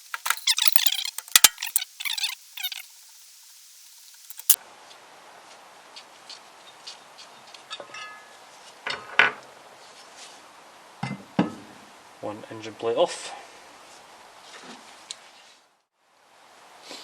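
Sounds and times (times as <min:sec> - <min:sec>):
metal clinks and knocks: 0:00.0 - 0:01.8.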